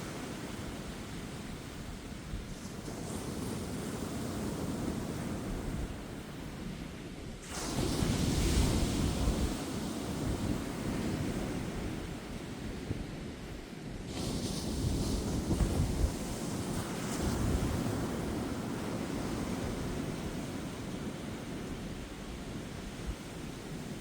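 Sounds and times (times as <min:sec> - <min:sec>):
waves breaking on beach: 0:00.0 - 0:24.0
wind buffeting microphone: 0:07.4 - 0:24.0.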